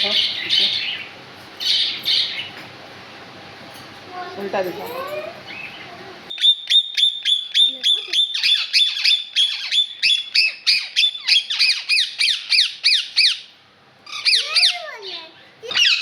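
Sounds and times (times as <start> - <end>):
bird squawking: 0.0 - 2.6, 5.5 - 15.0, 15.7 - 16.0.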